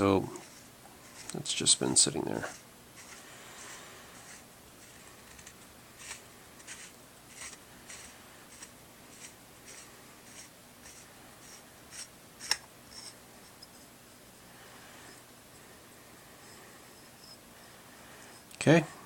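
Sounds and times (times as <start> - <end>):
threads scraping as pommel unscrews: 0.0 - 13.8.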